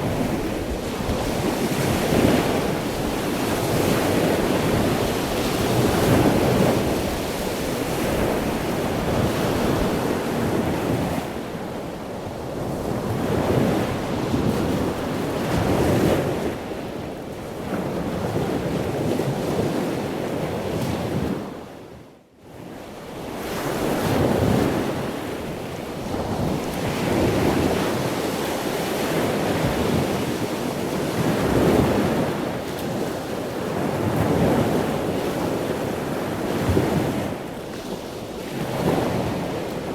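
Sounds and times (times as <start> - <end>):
ocean surf breaking on beach: 0.0 - 21.6, 23.0 - 39.9.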